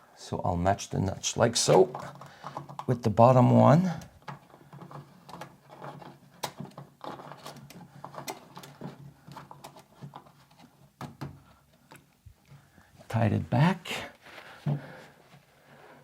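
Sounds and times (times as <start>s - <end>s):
plastic clicks and scrapes: 1.6s - 3.0s, 4.0s - 12.6s.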